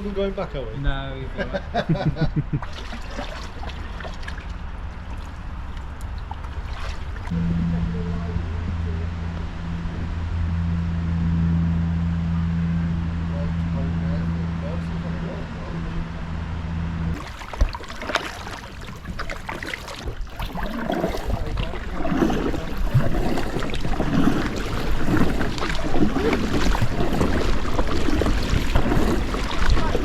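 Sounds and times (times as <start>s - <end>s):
low steady hum: 0.0s - 30.0s
water splashing: 2.5s - 7.8s, 17.1s - 30.0s
paddle strokes: 2.6s - 7.4s, 17.1s - 30.0s.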